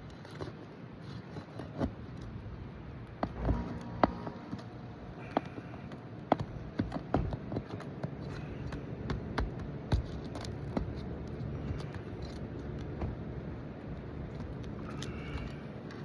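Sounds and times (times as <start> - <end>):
hand tools tapping and scraping shingles: 3.1 - 13.2, 14.3 - 16.0.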